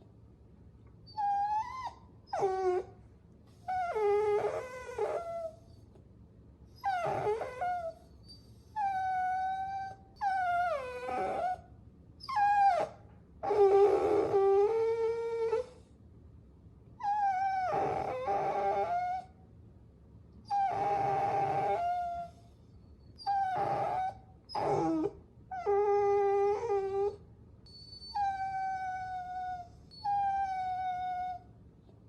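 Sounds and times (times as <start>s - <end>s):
puppies whining and yelping: 1.1s - 2.9s, 3.6s - 5.8s, 6.8s - 11.6s, 12.2s - 15.8s, 17.0s - 19.3s, 20.5s - 22.5s, 23.1s - 31.4s.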